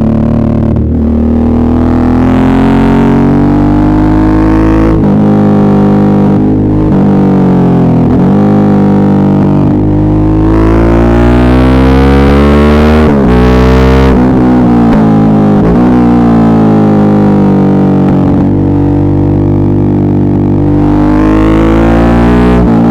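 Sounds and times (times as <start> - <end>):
motorcycle engine revving: 0.0 - 22.9.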